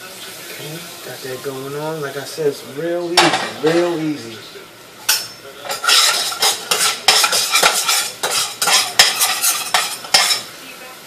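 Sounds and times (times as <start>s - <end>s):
faint sizzle: 0.0s - 11.0s
utensil scraping a pot: 5.6s - 10.4s.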